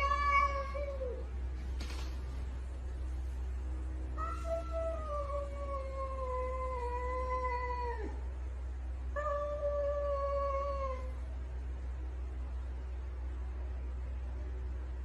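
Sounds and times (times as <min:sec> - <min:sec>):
cat yowling: 0:00.0 - 0:01.2, 0:04.2 - 0:08.2
steady low hum: 0:00.0 - 0:15.0.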